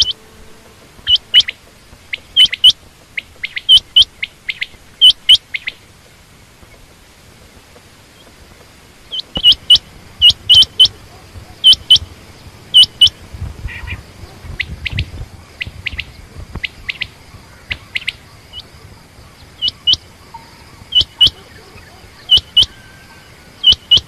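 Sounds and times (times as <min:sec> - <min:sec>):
quail calling: 0:01.0 - 0:05.8, 0:09.1 - 0:18.7, 0:19.3 - 0:24.0.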